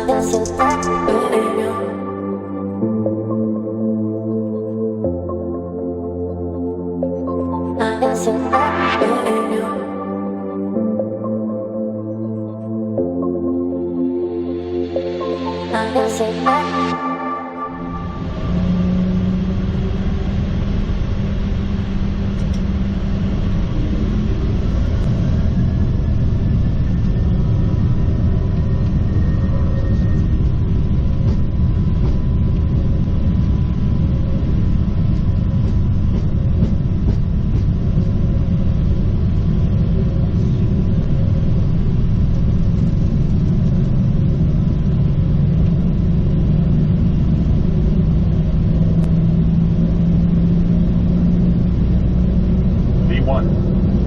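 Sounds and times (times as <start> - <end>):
faint rising whine: 0.0 - 54.0
jet engines rumbling: 14.1 - 54.0.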